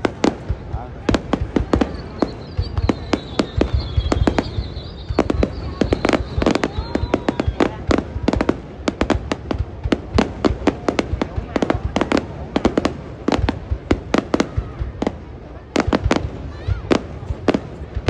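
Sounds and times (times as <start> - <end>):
fireworks bangs: 0.0 - 18.0
faint high whistle: 1.7 - 7.8.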